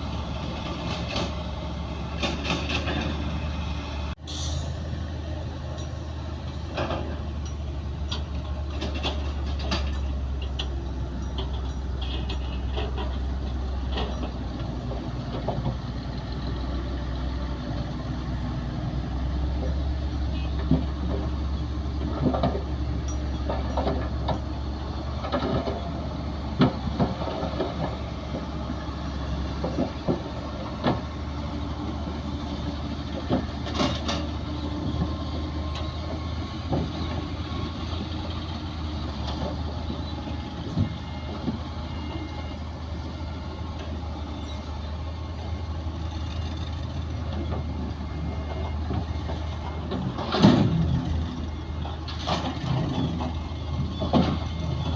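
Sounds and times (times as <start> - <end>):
bulldozer diesel engine droning: 0.0 - 54.9
short clanks and knocks: 2.1 - 3.4, 5.8 - 16.0, 19.5 - 28.5, 29.5 - 31.2, 33.1 - 37.3, 47.3 - 54.9.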